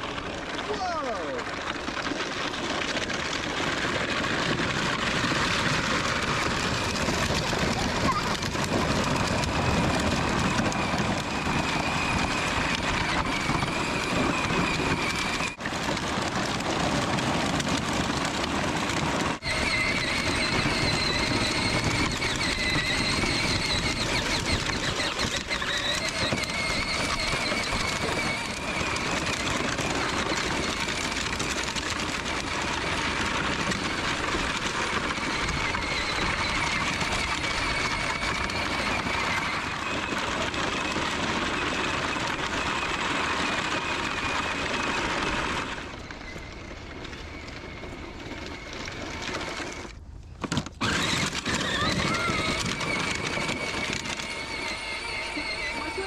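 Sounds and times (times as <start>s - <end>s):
small vehicle motor whining: 0.0s - 56.0s.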